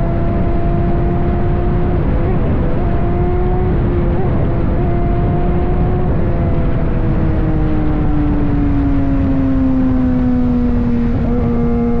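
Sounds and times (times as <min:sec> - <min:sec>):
motorcycle engine slowing: 0:09.2 - 0:12.0.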